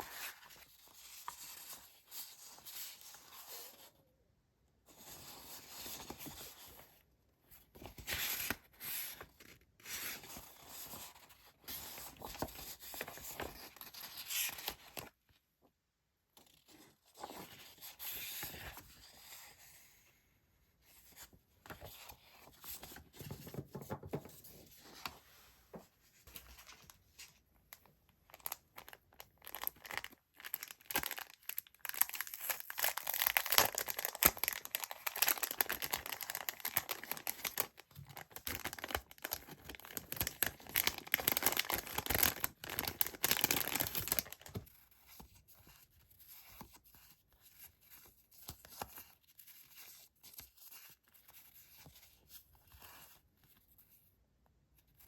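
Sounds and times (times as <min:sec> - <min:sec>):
paper crinkling and rustling: 0:21.0 - 0:53.9.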